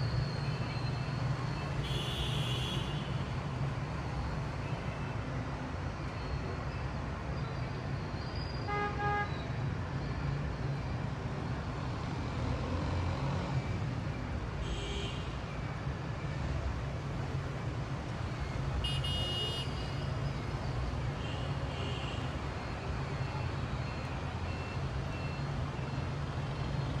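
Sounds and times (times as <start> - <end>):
low rumble of city traffic: 0.0 - 27.0
car horn: 1.8 - 3.2, 8.7 - 9.3, 18.8 - 20.0.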